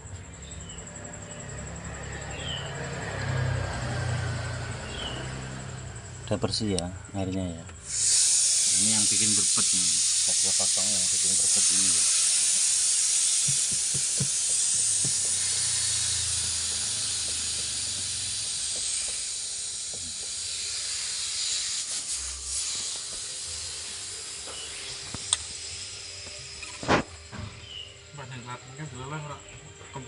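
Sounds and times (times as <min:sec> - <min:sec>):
compressed air blow gun hissing: 0:07.8 - 0:27.8.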